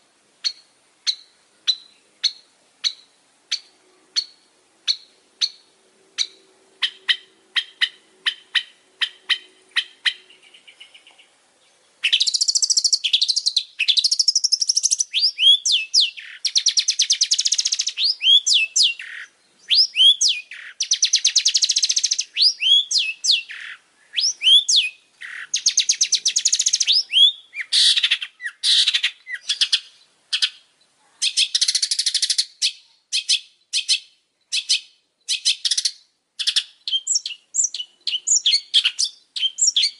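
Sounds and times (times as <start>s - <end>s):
shrike singing: 12.0s - 30.6s.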